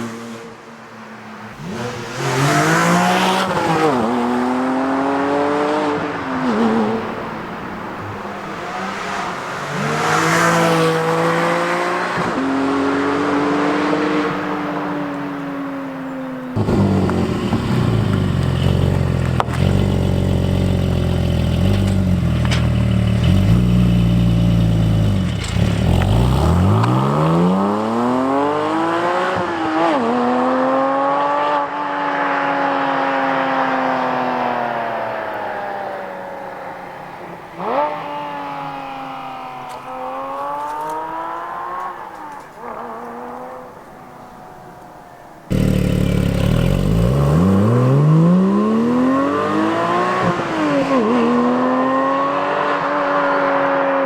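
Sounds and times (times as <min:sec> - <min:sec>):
sports car engine accelerating: 0:01.5 - 0:36.5, 0:45.5 - 0:54.0.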